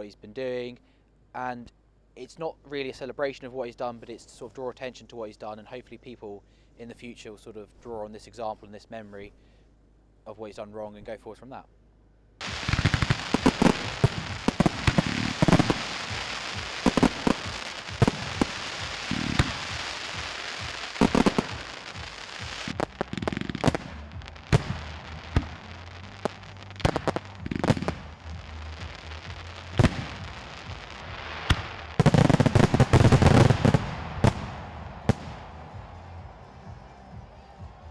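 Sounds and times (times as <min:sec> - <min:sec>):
fireworks bangs: 0:12.4 - 0:36.0
firecrackers crackling: 0:12.4 - 0:37.9.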